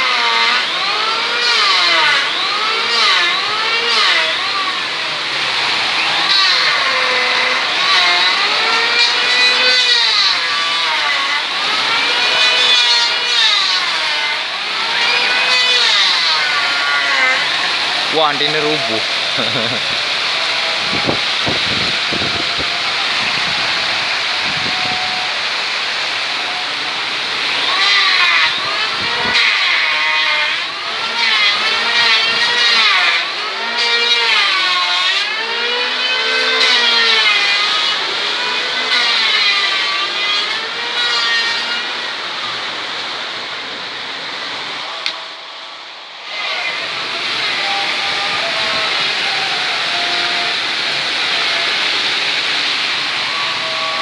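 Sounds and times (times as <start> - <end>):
wind howling and whistling: 17.5 - 27.7, 28.4 - 29.4, 42.0 - 54.0
gusting wind rushing: 19.0 - 25.8.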